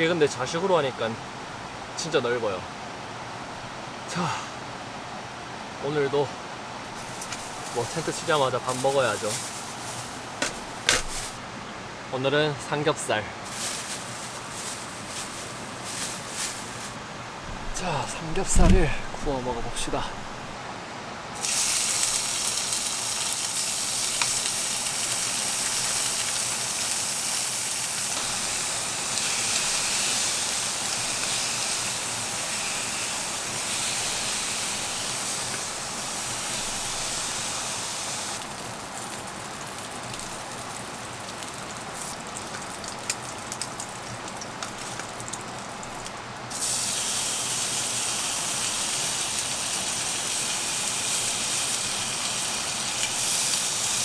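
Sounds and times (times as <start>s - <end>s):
meat sizzling in a pan: 6.9s - 11.4s, 21.4s - 54.0s.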